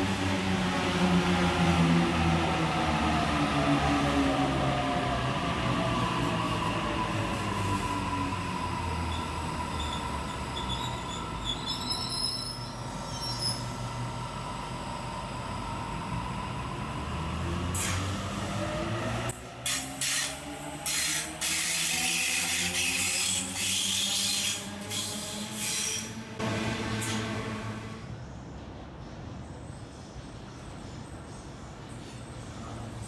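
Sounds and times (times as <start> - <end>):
train running noise: 0.0 - 33.0
train wheel squeal: 6.0 - 14.2, 19.7 - 26.3, 26.9 - 33.0.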